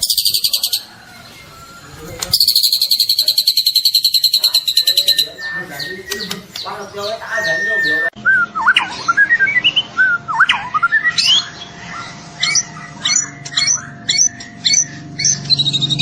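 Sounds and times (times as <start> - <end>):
bird singing whistled notes: 0.0 - 11.7.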